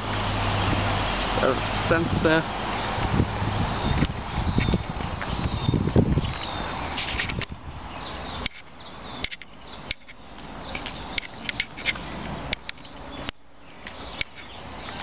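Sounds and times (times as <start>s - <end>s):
small birds chirping: 0.0s - 15.0s
footsteps on concrete: 3.9s - 15.0s.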